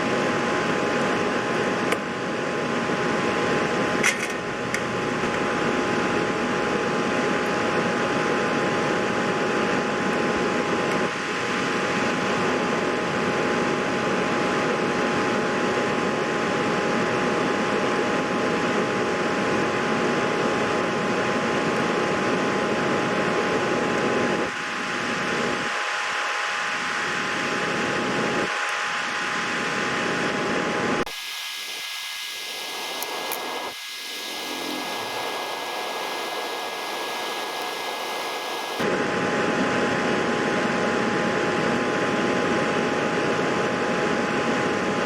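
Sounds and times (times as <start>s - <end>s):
fan whir: 28.9s - 40.1s
faint two-tone hum: 31.0s - 38.9s.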